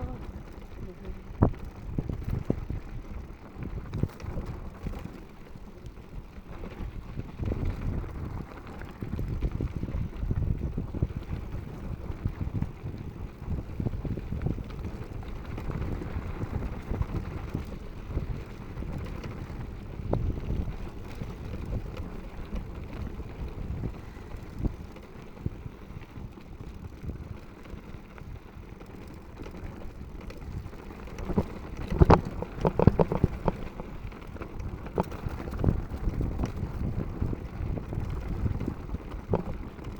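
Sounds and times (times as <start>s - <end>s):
wind buffeting microphone: 0.0s - 39.9s
tyres rumbling on dirt: 28.9s - 39.9s.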